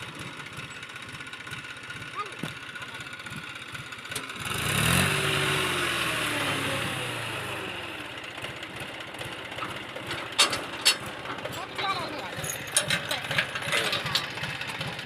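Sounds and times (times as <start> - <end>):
vehicle engine passing by: 4.4 - 7.8.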